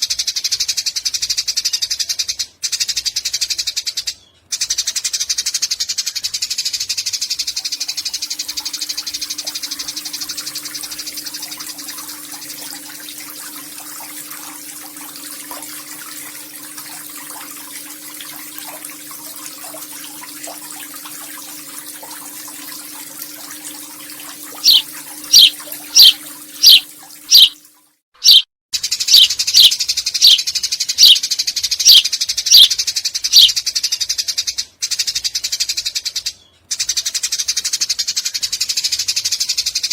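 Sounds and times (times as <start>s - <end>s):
sharp sparrow chirps: 24.6s - 27.6s, 28.2s - 28.4s, 29.1s - 30.4s, 31.0s - 31.2s, 31.8s - 32.7s, 33.3s - 33.6s
sparrow chattering trill: 24.6s - 27.6s, 28.2s - 28.4s, 29.1s - 30.4s, 31.0s - 31.2s, 31.8s - 32.7s, 33.3s - 33.5s.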